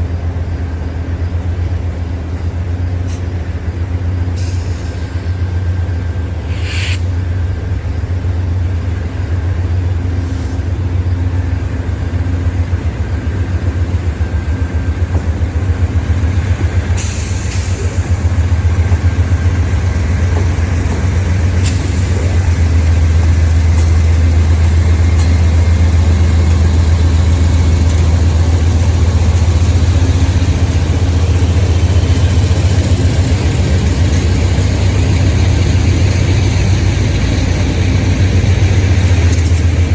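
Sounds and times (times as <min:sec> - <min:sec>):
diesel locomotive engine droning: 0:00.0 - 0:39.9
sharp hisses or clanks: 0:06.4 - 0:07.1, 0:16.9 - 0:18.2, 0:19.7 - 0:25.8.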